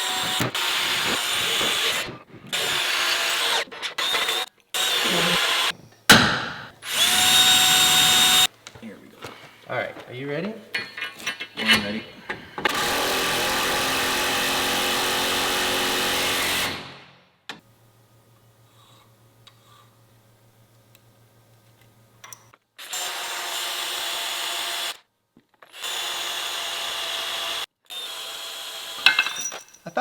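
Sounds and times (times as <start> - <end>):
power tool drilling steel: 0.0 - 8.5, 11.8 - 16.9.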